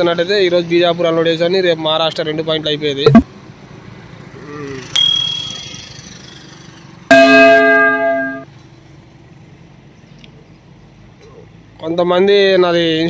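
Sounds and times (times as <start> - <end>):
sharp metallic ding: 5.0 - 6.0, 7.1 - 8.4
loud many-toned bell ring: 5.0 - 6.1, 7.1 - 8.4.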